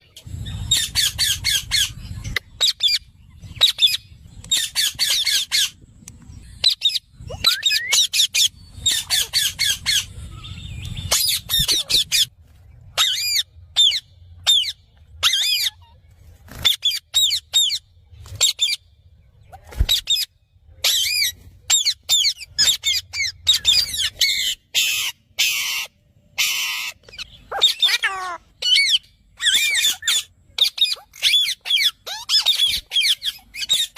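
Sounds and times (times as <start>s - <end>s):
parrot squawking: 6.6s - 10.1s, 11.1s - 12.3s, 20.8s - 33.9s.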